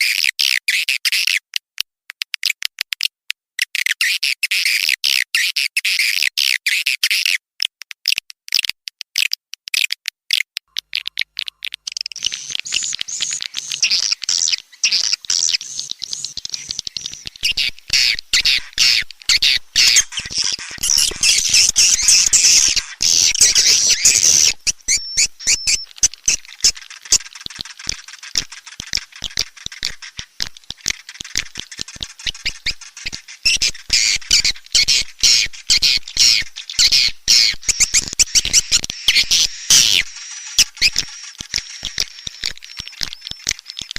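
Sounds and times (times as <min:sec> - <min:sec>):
fast dry clicks: 0:07.6 - 0:43.9
swiftlets chirping and twittering: 0:10.7 - 0:43.9.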